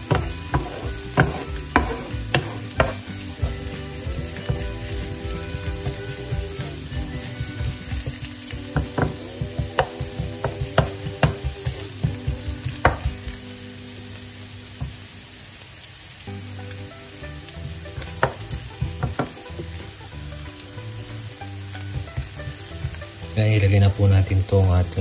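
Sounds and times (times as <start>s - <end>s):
wooden spoon tapping pan: 0.0s - 13.4s, 14.8s - 15.0s, 17.4s - 21.2s, 21.8s - 23.2s
onion sizzling in oil: 0.0s - 25.0s.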